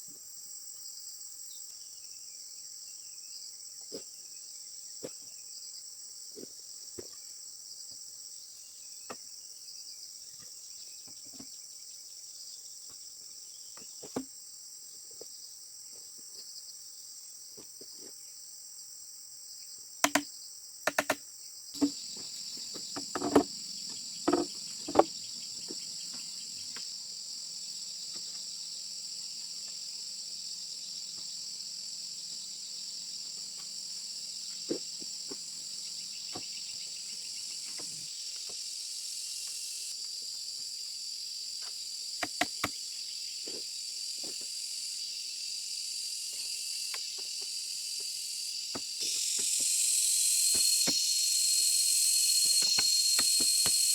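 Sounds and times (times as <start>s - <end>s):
insect chorus: 0.0s - 53.9s
sharp knocks: 21.8s - 25.2s.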